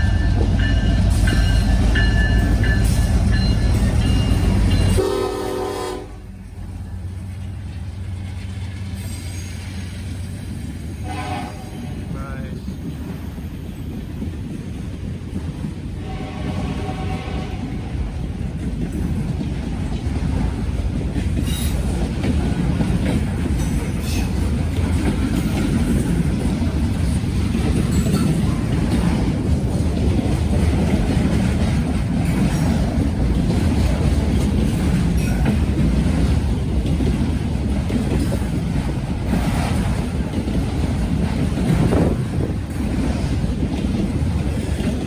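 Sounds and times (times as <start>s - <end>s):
freight train rumbling past: 0.0s - 45.0s.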